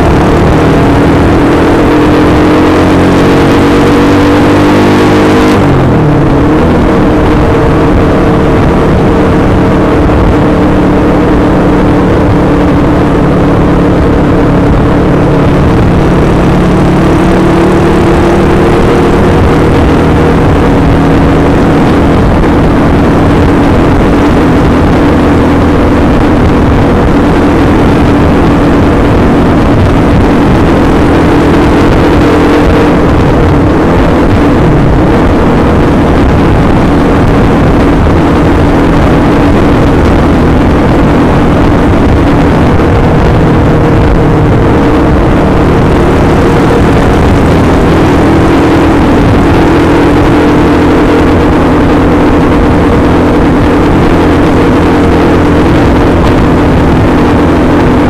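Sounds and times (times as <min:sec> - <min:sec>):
motorcycle engine at high revs: 0:00.0 - 0:58.0
wind noise on microphone: 0:00.0 - 0:58.0.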